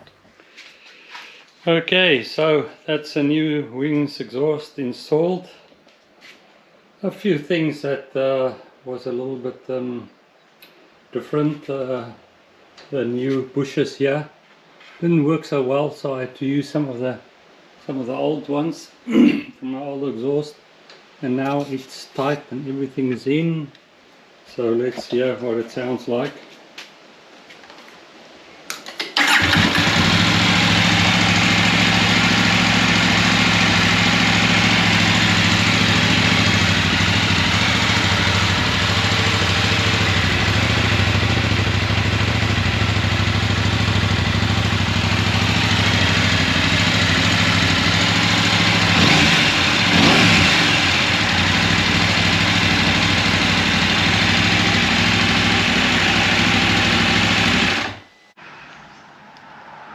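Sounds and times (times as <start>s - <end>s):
motorcycle starting and idling: 0.0s - 0.4s, 28.9s - 58.1s.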